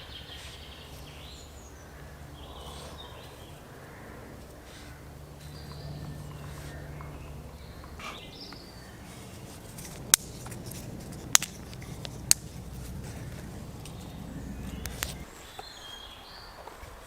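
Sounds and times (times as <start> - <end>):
bird chirping faintly: 0.0 - 16.6
campfire crackling and popping: 4.0 - 15.3.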